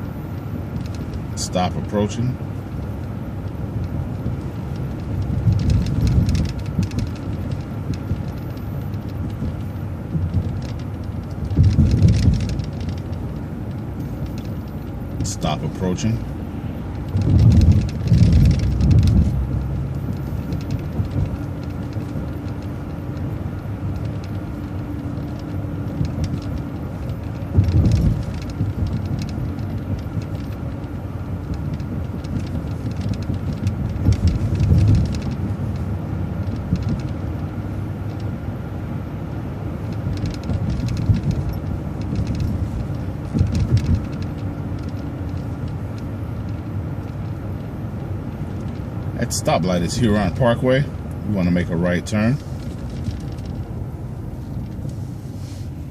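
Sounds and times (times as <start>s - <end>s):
bus engine and road rumble: 0.0s - 55.9s.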